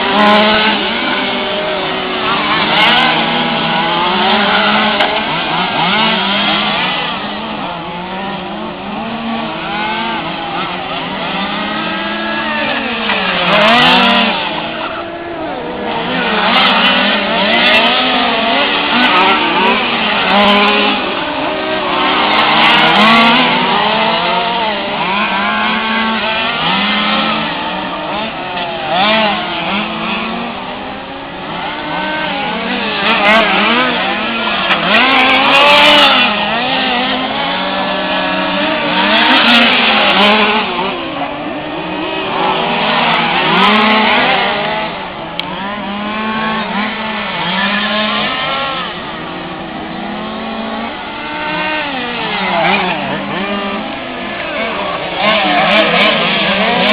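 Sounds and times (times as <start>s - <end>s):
model race car engines running: 0.0s - 56.9s.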